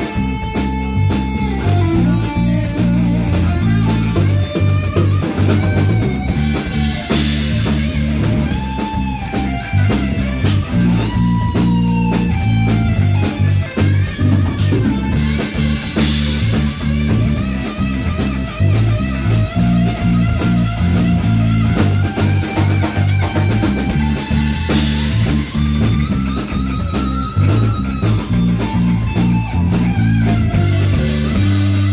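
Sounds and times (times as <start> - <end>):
electric guitar bent notes: 0.0 - 31.9
rock band playing: 0.0 - 31.9.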